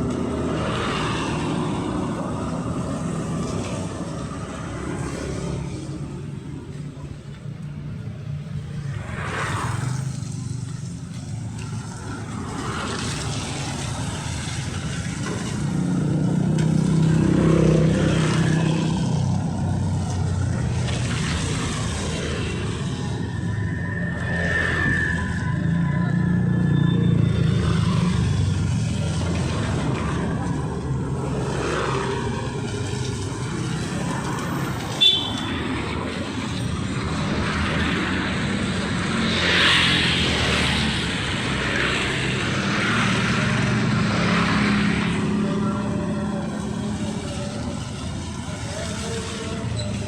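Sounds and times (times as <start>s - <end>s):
vehicle engines passing: 0.0s - 50.0s.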